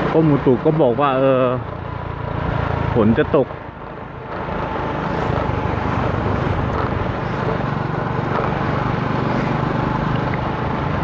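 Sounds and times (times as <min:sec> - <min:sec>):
vehicle engine humming: 0:00.0 - 0:11.0
wind on microphone: 0:05.0 - 0:09.6.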